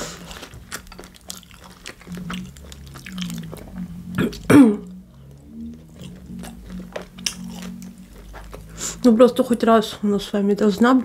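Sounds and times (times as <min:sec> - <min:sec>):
chewing with wet clicks: 0:00.2 - 0:10.1
person clearing throat: 0:04.2 - 0:04.9.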